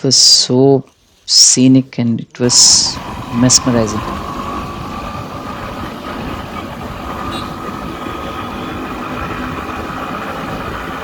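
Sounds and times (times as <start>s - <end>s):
road and wind noise: 2.4s - 11.0s
faint whine: 2.5s - 11.0s
motorbike engine running: 2.5s - 11.0s.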